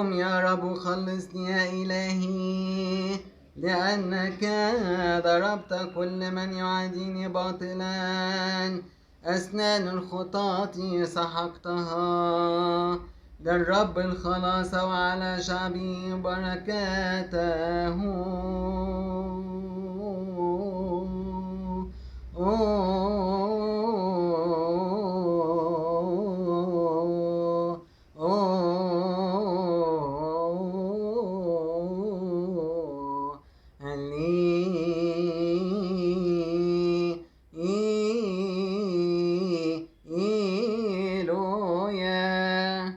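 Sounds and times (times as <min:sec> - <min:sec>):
man humming a chant melody: 0:00.0 - 0:42.9
breaths: 0:08.8 - 0:09.2, 0:13.1 - 0:13.4, 0:21.9 - 0:22.4, 0:27.8 - 0:28.2, 0:33.4 - 0:33.8, 0:37.2 - 0:37.5.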